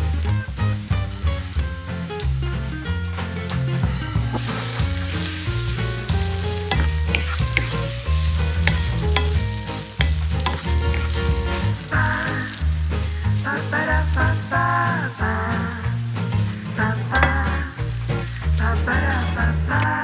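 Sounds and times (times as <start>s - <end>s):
background music with bass line: 0.0s - 20.0s
noodles sizzling in frying pan: 4.1s - 20.0s.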